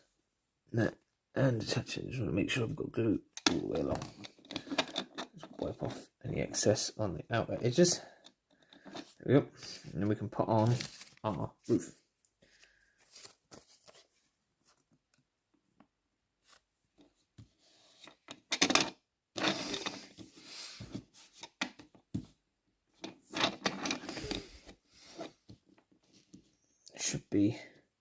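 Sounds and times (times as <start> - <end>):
newspaper rustling and crinkling: 10.5 - 11.5, 12.5 - 14.8.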